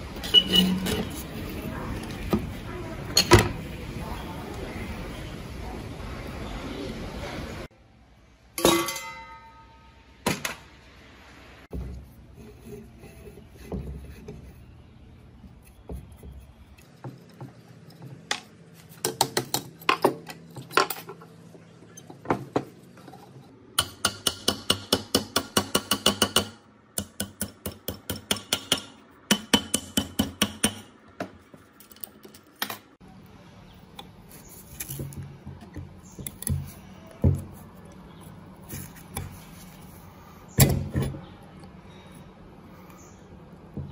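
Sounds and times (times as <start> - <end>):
ringing metal strike: 8.6 - 10.1.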